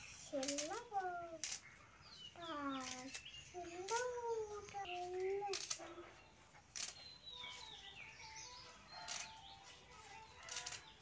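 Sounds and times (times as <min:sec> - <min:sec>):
small birds chirping: 0:00.0 - 0:11.0
sharp snaps: 0:02.7 - 0:05.9.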